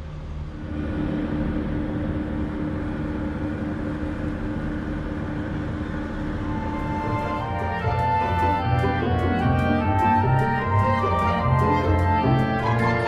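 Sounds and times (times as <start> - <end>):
vehicle engine humming: 3.6 - 13.0.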